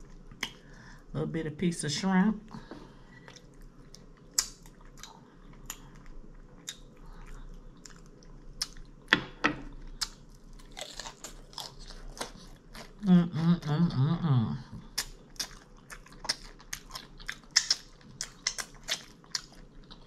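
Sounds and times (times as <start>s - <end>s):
person chewing crunchy food: 3.0s - 13.1s, 14.8s - 20.0s.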